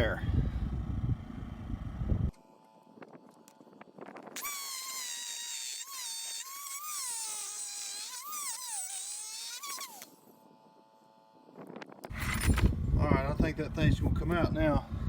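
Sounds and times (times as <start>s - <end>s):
power tool whining cutting steel: 4.4s - 10.2s.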